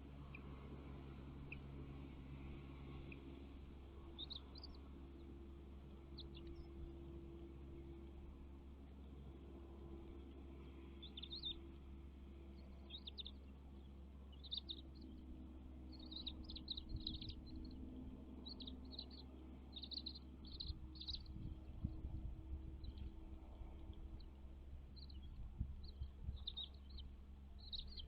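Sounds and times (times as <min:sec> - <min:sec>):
steady low hum: 0:00.0 - 0:28.0
bird chirping: 0:04.0 - 0:05.3, 0:06.0 - 0:06.9, 0:11.0 - 0:11.7, 0:12.5 - 0:15.2, 0:15.8 - 0:22.1, 0:22.7 - 0:23.2, 0:23.8 - 0:28.0.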